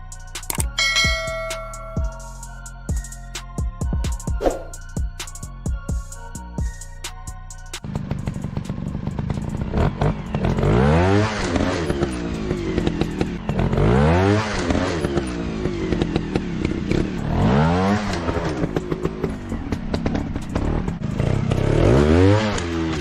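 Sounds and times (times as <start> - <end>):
dirt bike engine revving: 7.8 - 23.0.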